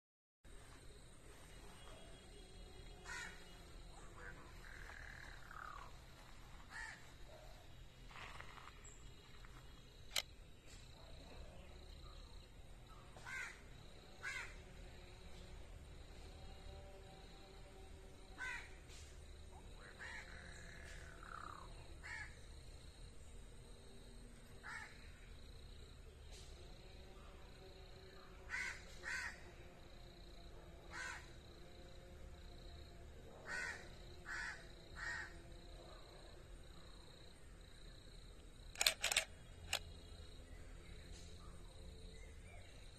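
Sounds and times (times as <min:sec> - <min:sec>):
sharp click: 0:38.7 - 0:39.9.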